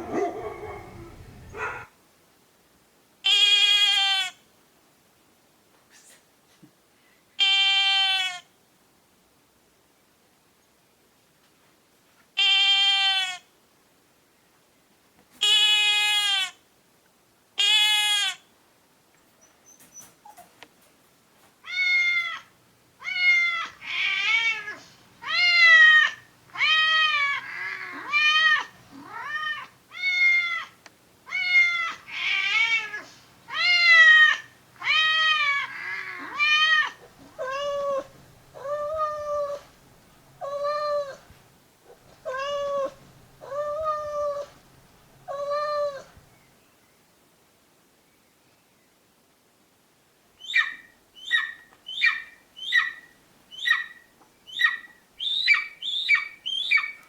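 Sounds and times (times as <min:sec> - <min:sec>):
cat meowing: 0:07.4 - 0:08.4, 0:12.4 - 0:13.4, 0:21.6 - 0:39.7, 0:40.4 - 0:41.3, 0:42.1 - 0:44.6, 0:45.3 - 0:46.2.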